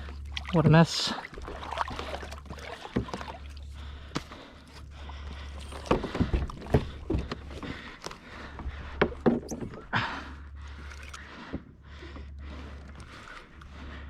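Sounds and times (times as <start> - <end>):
steady low hum: 0.0 - 14.0
gear knocking on plastic kayak: 5.8 - 10.0.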